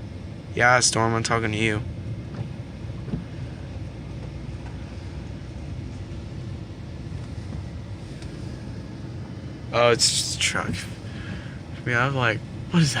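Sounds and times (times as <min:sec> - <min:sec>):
truck engine low rumble: 0:00.0 - 0:13.0.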